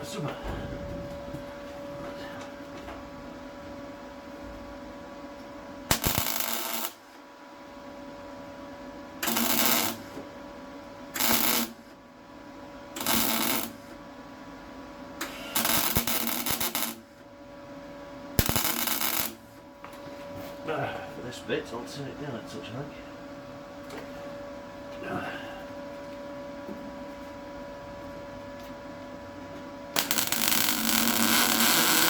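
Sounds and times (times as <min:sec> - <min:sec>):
welder crackling bursts: 0:05.9 - 0:07.1, 0:09.2 - 0:10.1, 0:11.2 - 0:11.8, 0:13.0 - 0:13.8, 0:15.5 - 0:17.0, 0:18.4 - 0:19.5, 0:30.0 - 0:32.0
welder humming: 0:05.9 - 0:07.2, 0:09.2 - 0:10.2, 0:11.2 - 0:11.8, 0:13.0 - 0:14.0, 0:15.2 - 0:17.0, 0:18.4 - 0:20.0, 0:29.9 - 0:32.0.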